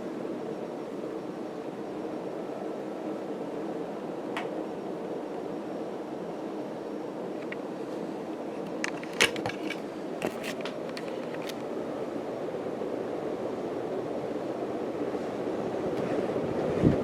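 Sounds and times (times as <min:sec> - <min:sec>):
ceiling fan rushing air: 0:00.0 - 0:17.0
sharp clicks and rattles: 0:08.6 - 0:11.7.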